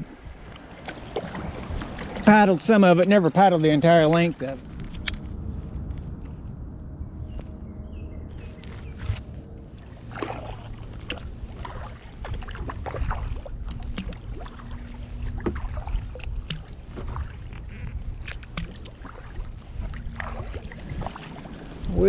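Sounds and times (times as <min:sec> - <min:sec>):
paddle splashing in water: 0:00.0 - 0:03.2, 0:08.4 - 0:22.0
steady low rumble: 0:00.0 - 0:22.0
water dripping off paddle: 0:09.7 - 0:21.8.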